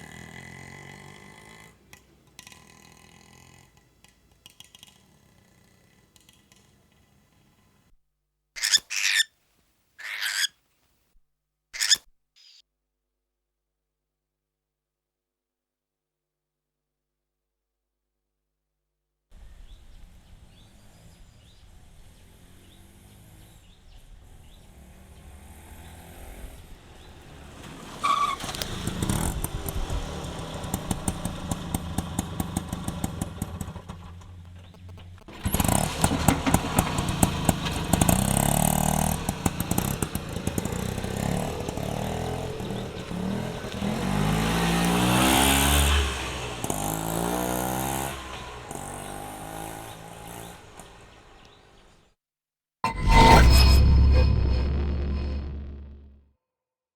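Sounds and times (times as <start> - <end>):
small engine puttering and revving: 0.0 - 7.8, 19.4 - 52.1.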